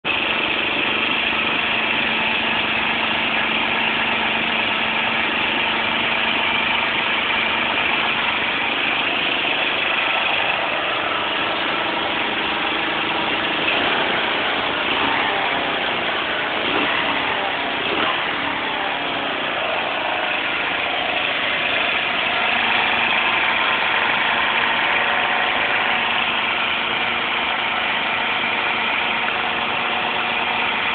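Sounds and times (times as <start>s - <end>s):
motorcycle engine idling: 0.0s - 30.9s.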